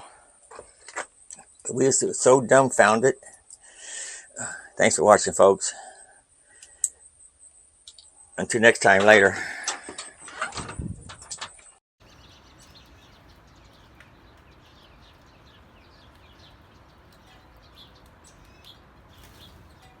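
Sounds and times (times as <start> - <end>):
background hiss: 0.0 - 9.4
birds chirping: 11.2 - 20.0.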